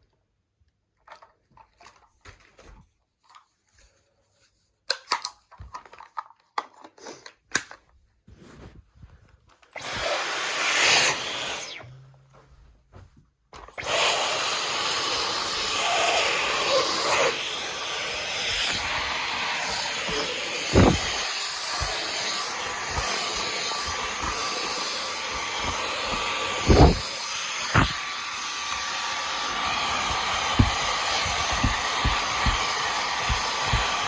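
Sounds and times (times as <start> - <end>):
cordless vacuum running: 9.7 - 12.2, 13.6 - 34.0.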